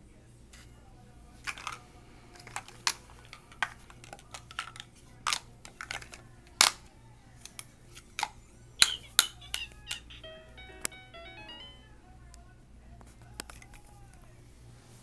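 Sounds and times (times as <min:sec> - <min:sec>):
plastic toys clicking together: 0:01.4 - 0:01.8, 0:02.4 - 0:10.2.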